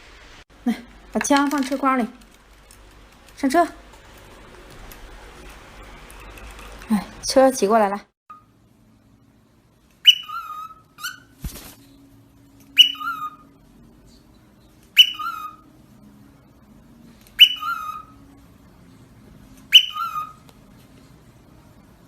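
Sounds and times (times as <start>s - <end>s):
parrot two-note whistle: 10.0s - 11.2s, 12.7s - 13.5s, 15.0s - 15.7s, 17.4s - 18.1s, 19.7s - 20.4s.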